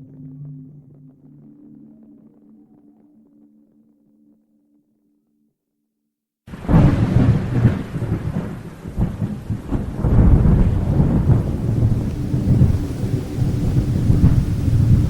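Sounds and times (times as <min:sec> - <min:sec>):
rolling thunder: 0:06.5 - 0:15.0
steady rain: 0:06.5 - 0:15.0.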